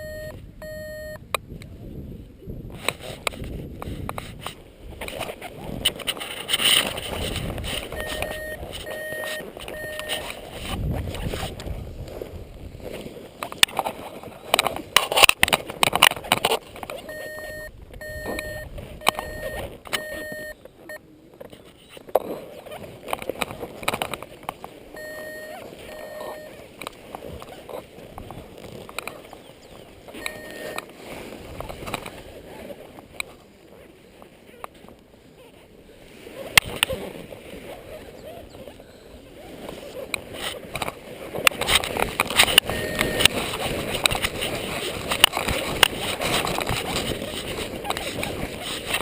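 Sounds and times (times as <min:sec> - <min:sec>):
variometer beeping: 0:00.0 - 0:01.2, 0:07.9 - 0:10.3, 0:17.0 - 0:21.0, 0:25.0 - 0:26.6, 0:30.2 - 0:30.8, 0:42.6 - 0:43.3
wind noise on microphone: 0:00.0 - 0:49.0.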